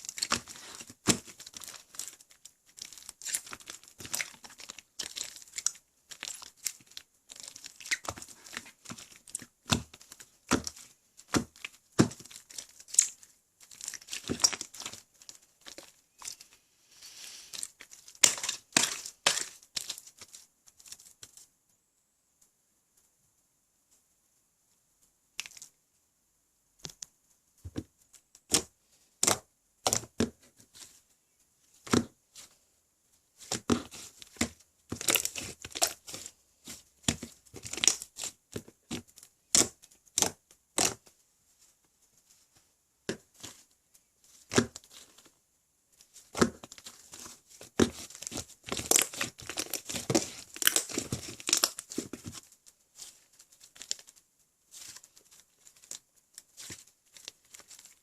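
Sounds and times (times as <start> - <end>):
slime squishing and popping: 0.0 - 16.5, 17.5 - 21.4, 25.4 - 25.7, 33.4 - 41.0, 46.2 - 54.2.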